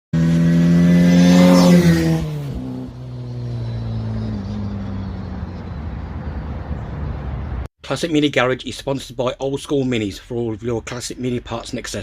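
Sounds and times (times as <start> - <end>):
car engine revving and idling: 0.2 - 7.7.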